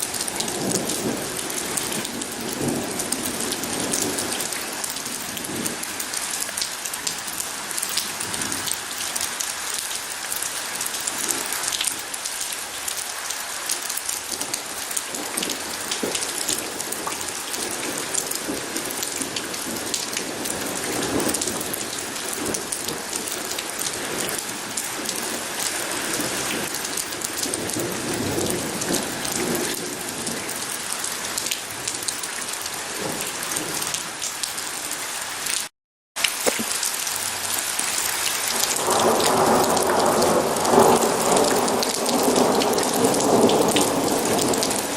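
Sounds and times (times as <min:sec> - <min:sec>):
heavy rain pattering: 0:00.0 - 0:44.9.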